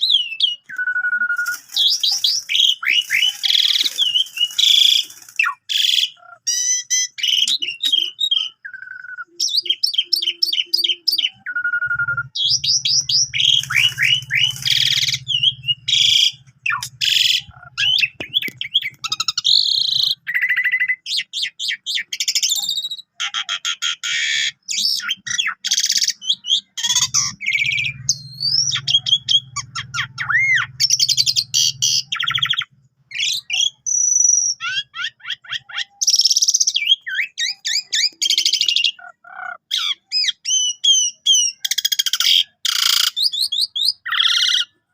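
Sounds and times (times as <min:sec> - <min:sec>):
starling singing varied song: 0:00.1 - 0:22.4
low buzzing hum: 0:11.8 - 0:18.5.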